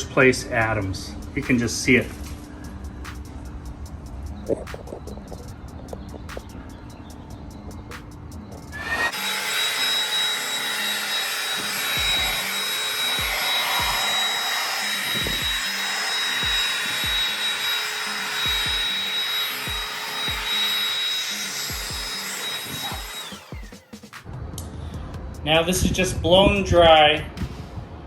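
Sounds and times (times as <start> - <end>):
electric air blower whining: 8.7 - 24.0.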